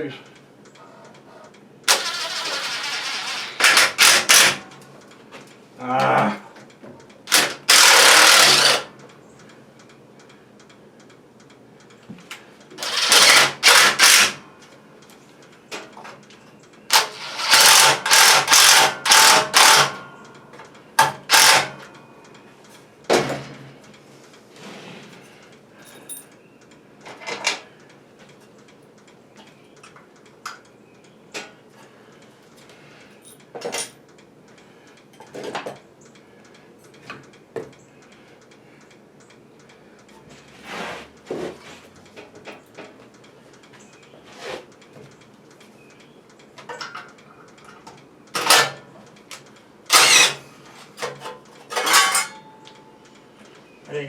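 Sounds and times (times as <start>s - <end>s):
handheld power tool bursts: 1.9s - 4.6s, 7.3s - 8.9s, 12.8s - 14.4s, 16.9s - 20.1s, 21.0s - 21.8s, 49.9s - 50.5s.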